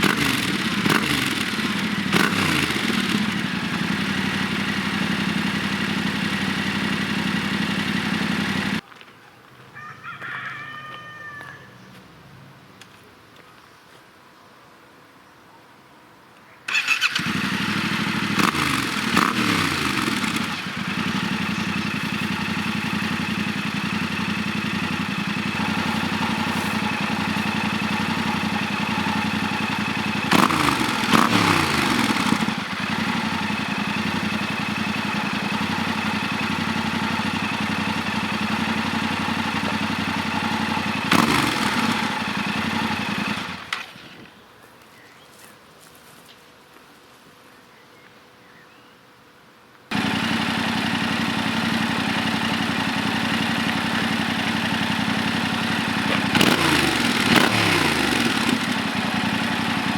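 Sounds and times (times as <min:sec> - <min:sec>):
motorcycle engine idling: 0:00.0 - 0:08.8, 0:16.7 - 0:44.2, 0:49.9 - 0:59.9
motorcycle throttle blips: 0:00.0 - 0:08.8, 0:16.7 - 0:44.3, 0:49.9 - 0:59.9.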